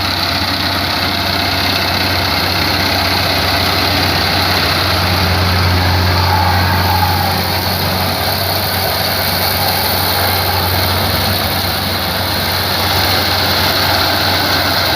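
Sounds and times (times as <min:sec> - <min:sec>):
harvester engine humming: 0:00.0 - 0:14.9.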